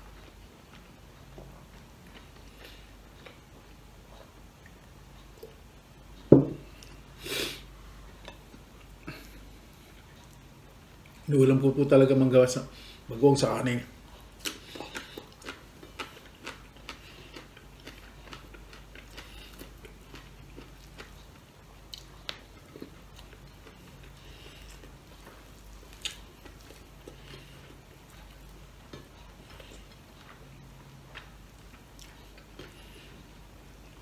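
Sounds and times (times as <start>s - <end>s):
chewing and wet mouth sounds: 0.0s - 5.6s, 14.1s - 34.0s.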